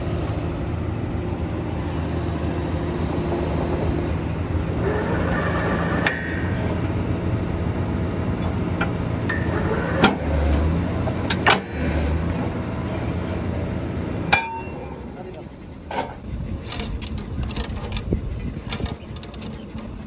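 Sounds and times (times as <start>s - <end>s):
drilling rig machinery running: 0.0s - 20.0s
sharp metal clangs: 14.3s - 15.0s.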